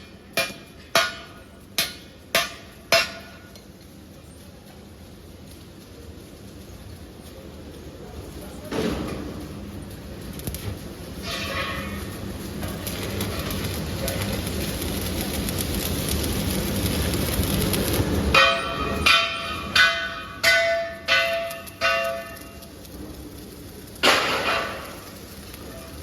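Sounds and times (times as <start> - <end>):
workshop machine noise: 0.0 - 26.0
steel struck ringing: 18.3 - 22.7.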